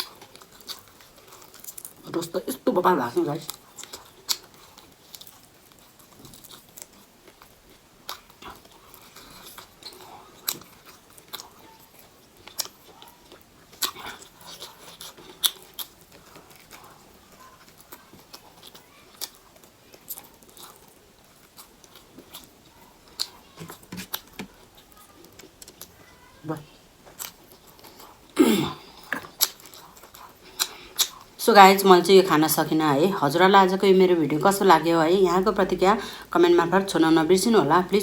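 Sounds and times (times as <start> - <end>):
person chewing food: 0.0 - 2.2, 3.4 - 26.1, 26.8 - 31.4.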